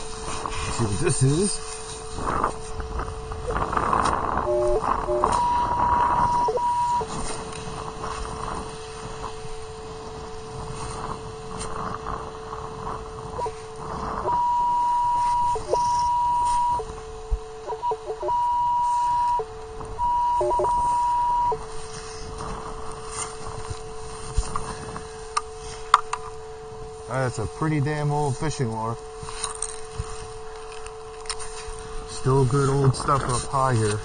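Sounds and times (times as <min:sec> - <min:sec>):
metal detector tone: 0:03.4 - 0:12.0, 0:13.3 - 0:17.0, 0:17.6 - 0:26.4
metal detector short blips: 0:04.4 - 0:07.1.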